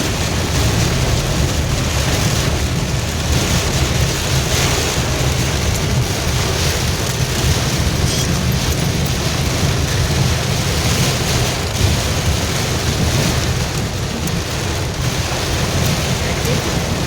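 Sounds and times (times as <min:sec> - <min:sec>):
heavy rain falling: 0:00.0 - 0:17.0
vehicle rumble on road: 0:00.0 - 0:17.0.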